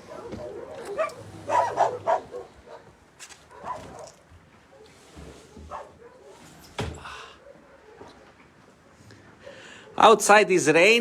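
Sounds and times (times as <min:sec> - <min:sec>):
dog barking: 0:00.0 - 0:04.9, 0:05.6 - 0:06.5, 0:07.4 - 0:08.2.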